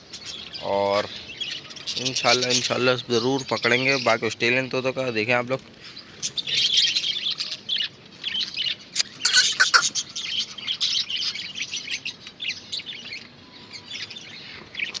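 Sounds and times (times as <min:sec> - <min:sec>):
budgerigars chirping and chattering: 0:00.0 - 0:15.0.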